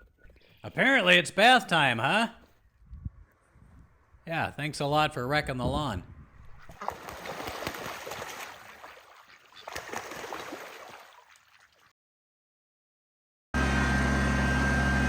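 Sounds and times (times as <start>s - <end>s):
running splashing water: 6.7s - 11.9s.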